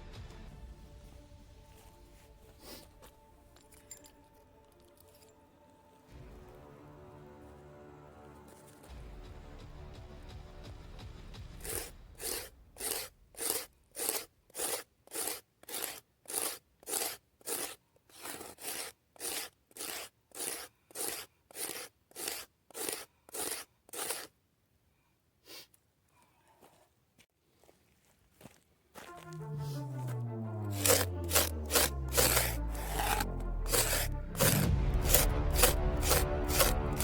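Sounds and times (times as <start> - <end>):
dry branch being scraped: 11.6 - 24.3, 30.6 - 37.0.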